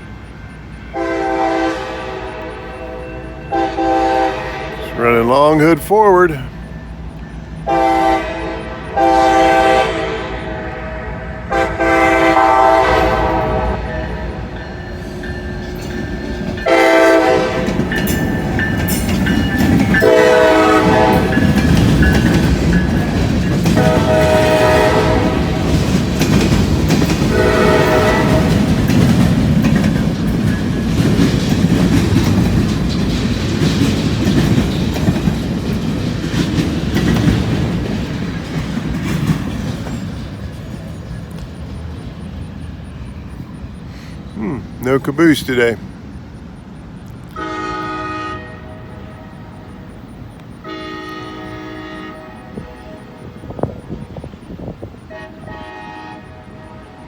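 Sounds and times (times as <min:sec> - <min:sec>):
locomotive engine rumbling: 0:00.0 - 0:57.0
locomotive air horn blasts: 0:00.9 - 0:05.4, 0:07.6 - 0:15.3, 0:16.6 - 0:18.0, 0:19.9 - 0:21.6, 0:23.7 - 0:25.9, 0:27.3 - 0:28.8, 0:47.3 - 0:49.7, 0:50.6 - 0:53.4, 0:55.1 - 0:57.0
train wheels clacking over rails: 0:11.5 - 0:57.0.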